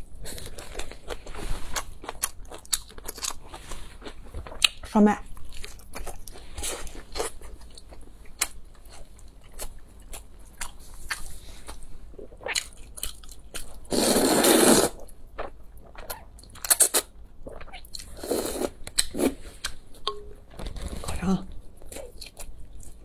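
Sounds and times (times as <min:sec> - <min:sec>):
chewing with crunches: 0:00.0 - 0:13.9.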